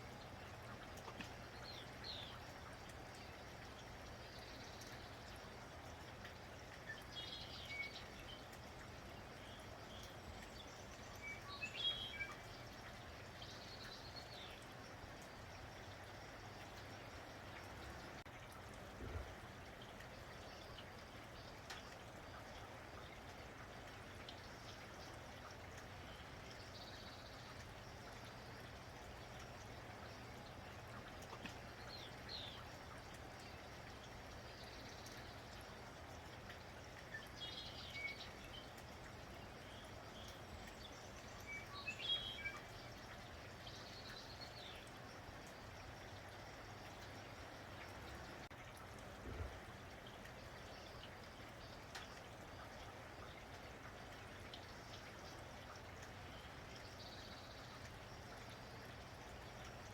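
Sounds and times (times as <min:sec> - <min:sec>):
light rain: 0:00.0 - 0:59.9.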